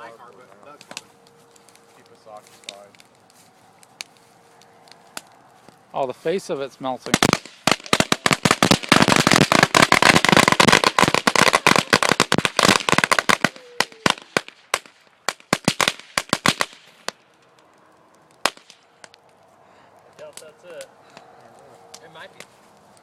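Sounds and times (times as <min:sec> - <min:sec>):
firecrackers banging: 0:06.4 - 0:23.0.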